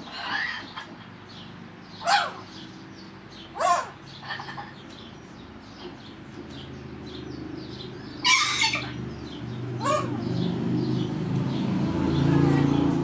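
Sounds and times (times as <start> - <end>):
cockatoo chattering and screeching: 0.0 - 1.2, 2.0 - 2.7, 3.4 - 5.0, 8.2 - 9.1, 9.8 - 10.3.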